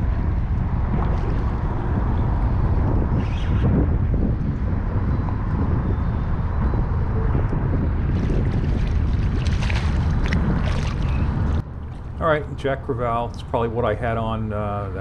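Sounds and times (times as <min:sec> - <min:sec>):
wind buffeting microphone: 0:00.0 - 0:15.0
sharp crackles and splashes: 0:08.1 - 0:12.2.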